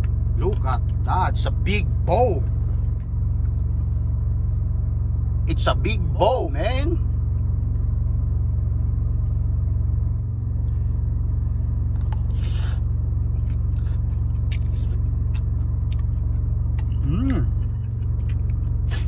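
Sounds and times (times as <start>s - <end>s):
truck engine idling: 0.0s - 19.0s
short hissy noise: 12.3s - 12.9s.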